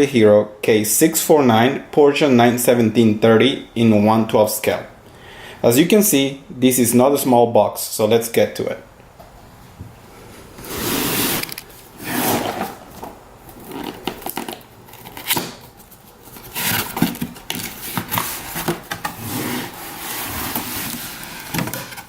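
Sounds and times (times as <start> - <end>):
cardboard sliding and rustling: 10.4 - 22.0.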